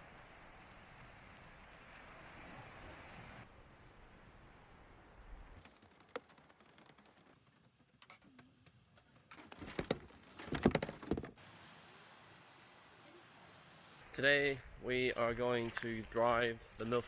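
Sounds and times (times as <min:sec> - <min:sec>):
knocks and rattles: 0:05.6 - 0:11.4.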